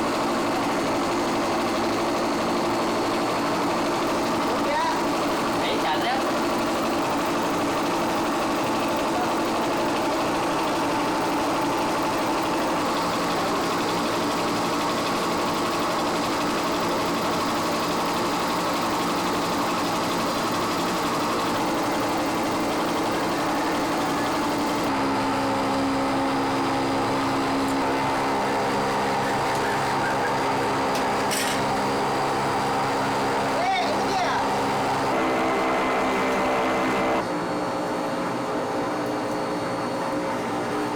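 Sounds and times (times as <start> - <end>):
industrial machinery droning: 0.0 - 38.4.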